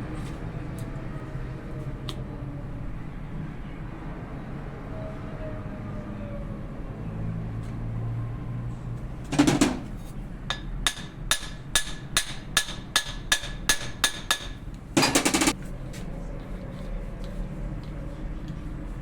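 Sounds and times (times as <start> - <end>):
hammer striking metal: 9.3 - 15.6.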